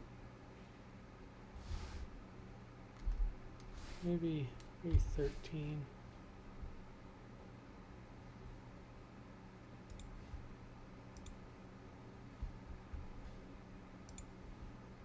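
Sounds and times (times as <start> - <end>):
faint low hum: 0.0 - 15.0
computer mouse clicks: 9.8 - 10.5, 11.1 - 11.4, 14.0 - 14.4.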